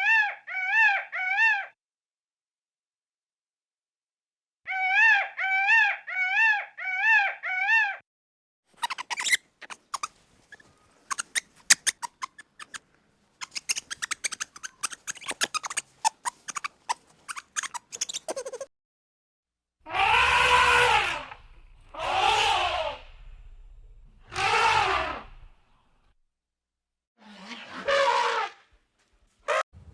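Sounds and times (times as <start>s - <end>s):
animal crying high-pitched: 8.8s - 12.8s, 13.4s - 18.7s
short clicks and squeaky chirps: 8.8s - 12.8s, 13.4s - 18.7s.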